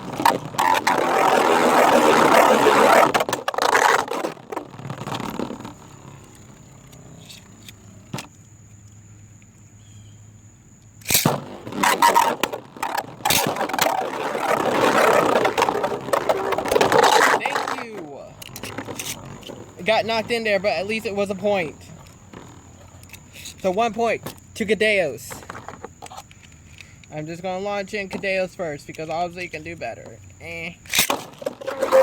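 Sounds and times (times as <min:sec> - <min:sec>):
spinning tops scraping and rattling: 0:11.0 - 0:23.8, 0:30.8 - 0:32.0
spinning tops clacking together: 0:30.8 - 0:31.4.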